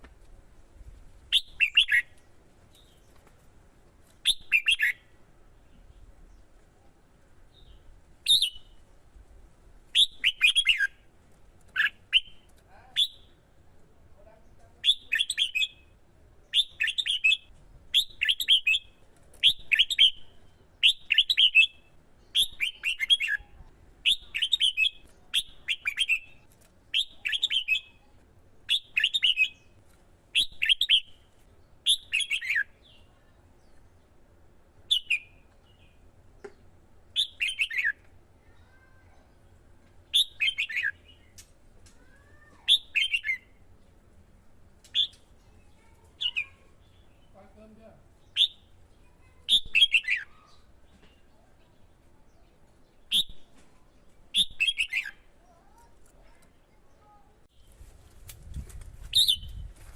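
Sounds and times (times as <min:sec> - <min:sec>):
bird singing warbled phrase: 0:01.3 - 0:02.2, 0:04.2 - 0:05.1, 0:09.9 - 0:11.0, 0:11.8 - 0:13.4, 0:14.2 - 0:28.1, 0:28.7 - 0:29.8, 0:40.1 - 0:41.3, 0:42.0 - 0:43.6, 0:45.0 - 0:57.4.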